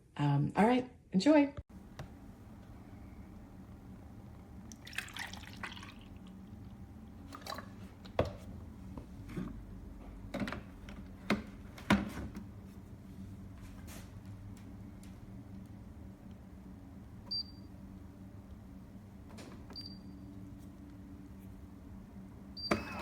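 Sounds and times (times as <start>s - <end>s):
faint steady hum: 1.7s - 23.0s
liquid splash: 4.7s - 6.3s.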